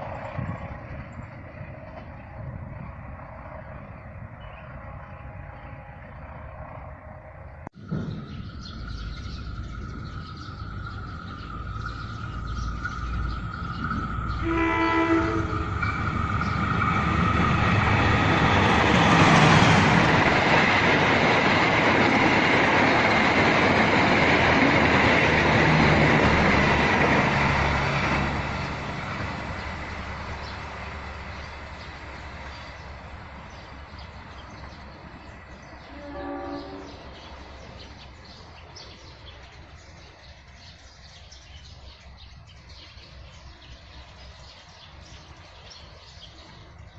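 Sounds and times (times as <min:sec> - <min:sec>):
train passing: 0:00.0 - 0:46.9
train horn blasts: 0:14.3 - 0:15.9, 0:35.8 - 0:37.2.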